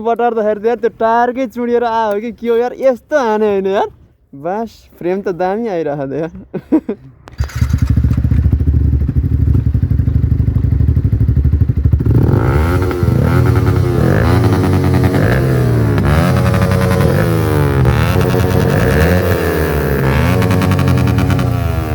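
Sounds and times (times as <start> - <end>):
motorcycle engine idling and revving: 7.3 - 21.9.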